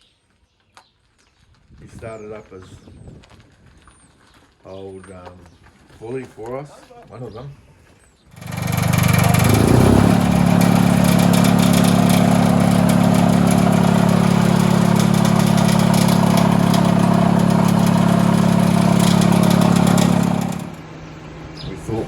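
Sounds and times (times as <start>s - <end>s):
old engine running: 8.3s - 22.0s.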